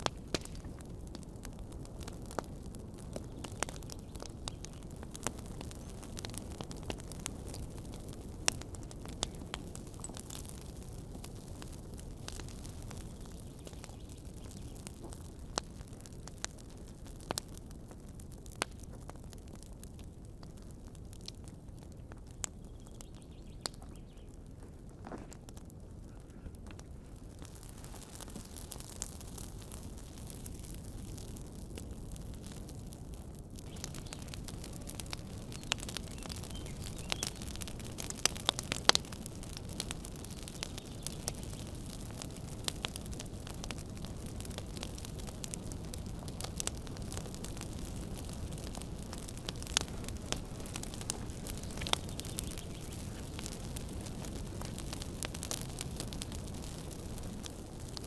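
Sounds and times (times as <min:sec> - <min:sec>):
fire crackles and pops: 0:00.0 - 0:58.0
fire rumbling hiss: 0:00.0 - 0:58.0.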